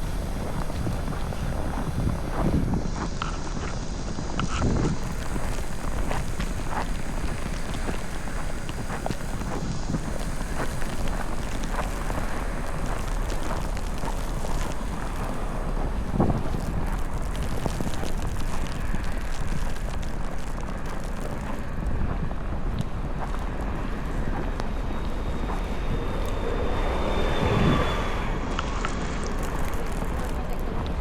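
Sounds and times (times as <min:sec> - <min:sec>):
storm wind buffeting microphone: 0:00.0 - 0:31.0.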